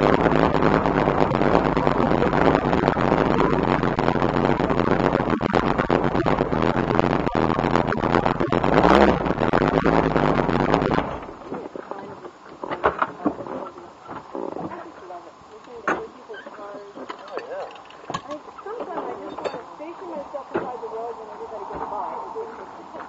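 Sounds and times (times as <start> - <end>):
car engine running: 0.0 - 12.4.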